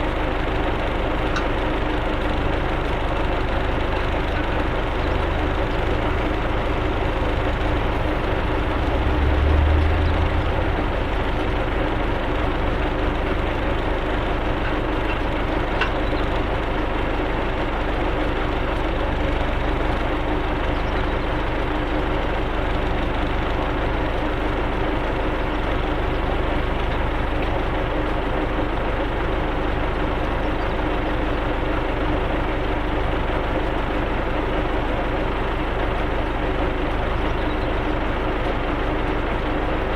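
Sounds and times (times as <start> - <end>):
tractor engine droning: 0.0 - 39.9.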